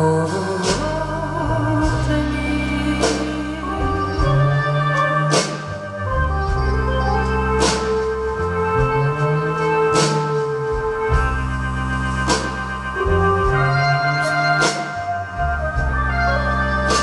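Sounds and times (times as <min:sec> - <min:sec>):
electronic keyboard organ chords: 0:00.6 - 0:17.0.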